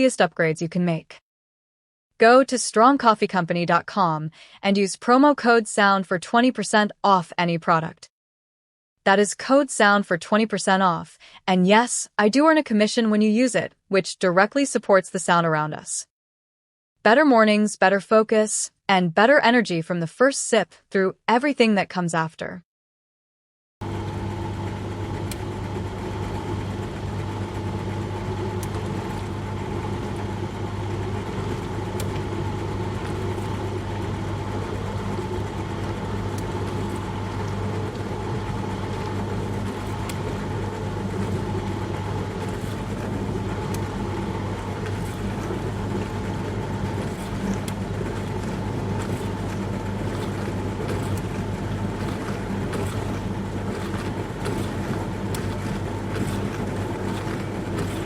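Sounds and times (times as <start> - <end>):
dishwasher motor hum: 23.8 - 58.0.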